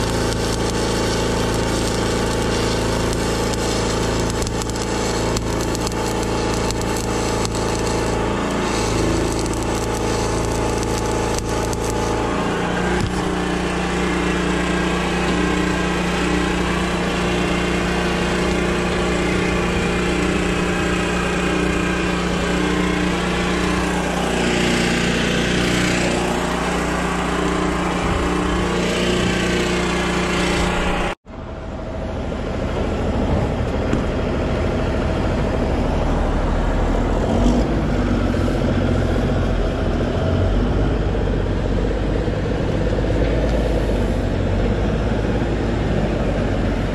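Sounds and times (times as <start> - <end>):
diesel engine running under load: 0.0 - 46.9.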